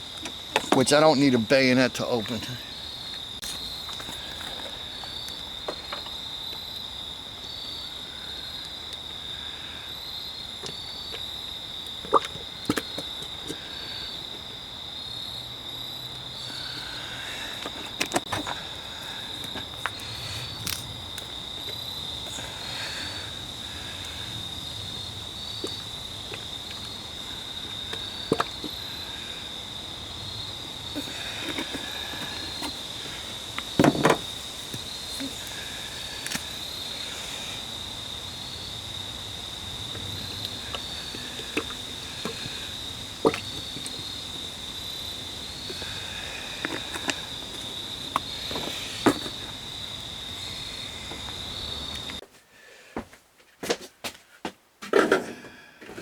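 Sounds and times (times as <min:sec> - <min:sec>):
insects trilling: 0:00.0 - 0:52.2
loud thump: 0:33.8 - 0:34.3.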